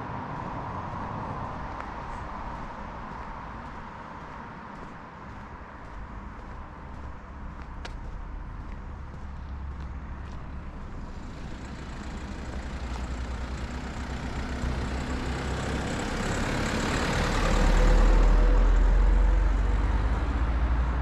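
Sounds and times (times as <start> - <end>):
vehicle driving past: 8.0 - 21.0.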